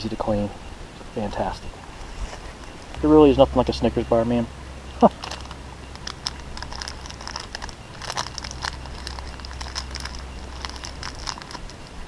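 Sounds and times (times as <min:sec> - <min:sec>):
wrapper crinkling: 0:05.1 - 0:12.0.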